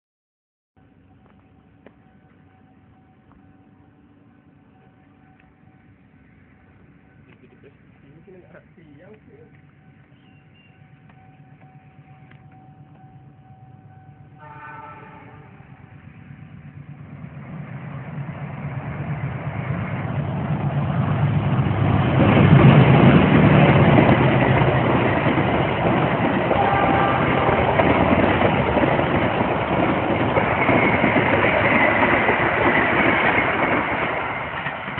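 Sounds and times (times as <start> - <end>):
train rumbling past on rails: 0.8 - 34.9
train horn: 13.9 - 16.0, 26.5 - 27.8.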